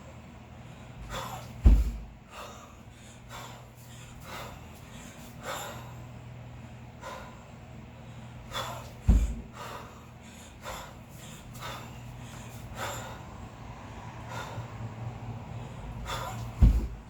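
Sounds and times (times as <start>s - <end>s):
person breathing forcefully: 0.6s - 17.0s
dull thump: 1.6s - 2.1s, 9.0s - 9.5s, 16.5s - 17.0s.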